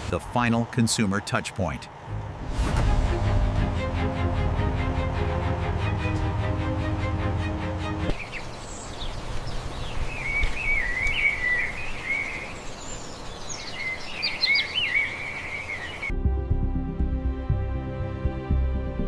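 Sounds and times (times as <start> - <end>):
music: 2.1 - 8.2, 16.1 - 19.0
birdsong warbling and chirping: 7.4 - 16.1
outdoor hiss: 8.1 - 16.0.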